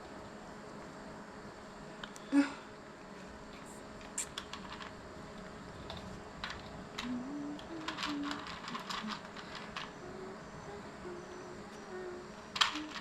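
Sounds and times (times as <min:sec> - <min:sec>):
plastic parts clicking and rattling: 0:03.5 - 0:10.1, 0:12.5 - 0:13.0.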